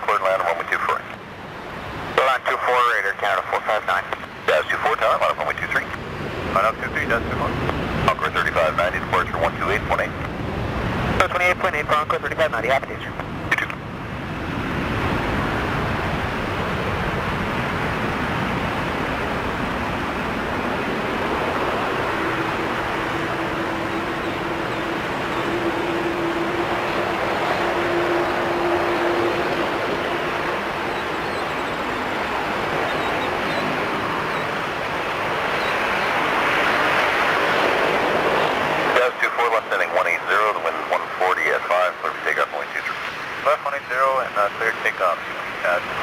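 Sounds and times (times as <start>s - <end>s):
jet engines rushing with rumble: 0.0s - 46.0s.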